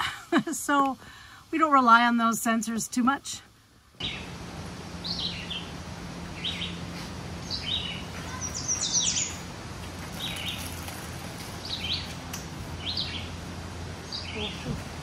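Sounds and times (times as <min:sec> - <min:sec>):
steady low hum: 0:00.0 - 0:15.0
small birds chirping: 0:04.0 - 0:04.4, 0:05.0 - 0:15.0.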